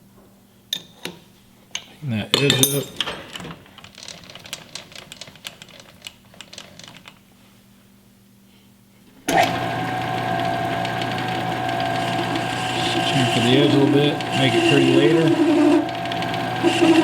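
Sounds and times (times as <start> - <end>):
tools clicking and tapping: 0.7 - 7.2
metal lathe motor whine: 9.3 - 17.0.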